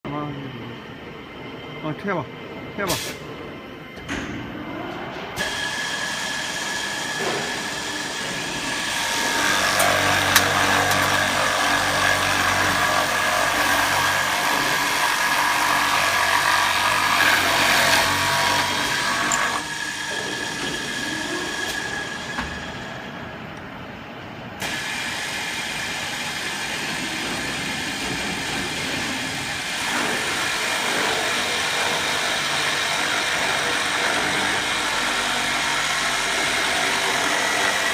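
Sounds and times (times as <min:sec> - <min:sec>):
drill motor whine: 0:05.4 - 0:22.9, 0:29.2 - 0:37.9
rough cutting noise: 0:08.8 - 0:21.8.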